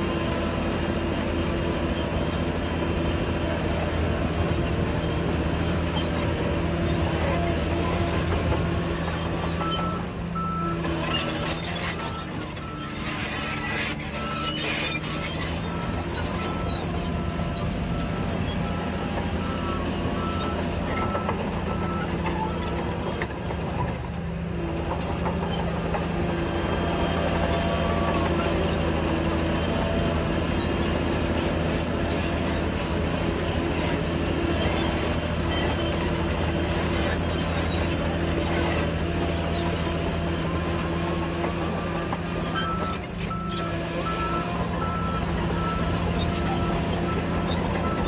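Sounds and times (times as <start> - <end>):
heavy machine diesel engines: 0.0 - 48.0
reversing alarm beeping: 9.2 - 23.3, 42.5 - 48.0.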